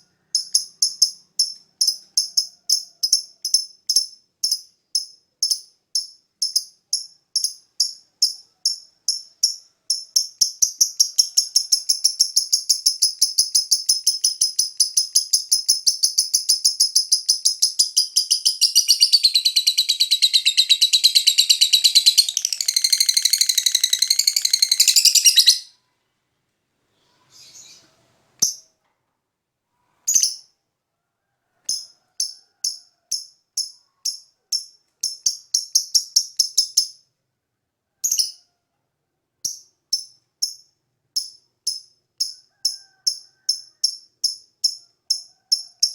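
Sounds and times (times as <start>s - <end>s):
lovebird chirping: 0.0s - 26.0s, 27.0s - 28.7s, 30.1s - 30.5s, 31.7s - 37.0s
bird chattering trill: 7.4s - 25.7s.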